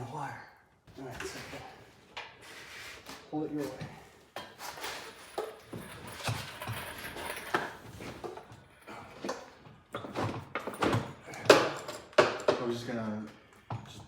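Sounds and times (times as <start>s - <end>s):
metal hardware knocking and scraping: 4.4s - 12.9s.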